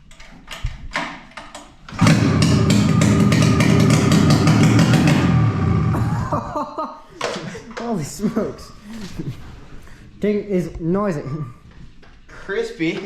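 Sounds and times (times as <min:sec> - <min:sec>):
recoil starter cord pulling: 0:01.9 - 0:06.0
snowmobile engine running loudly: 0:02.0 - 0:06.3.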